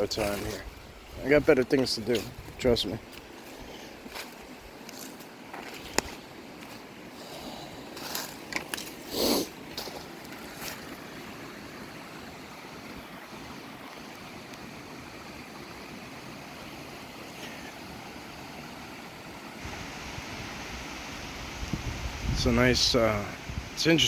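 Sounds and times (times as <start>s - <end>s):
waterfall rushing water: 9.5s - 24.0s.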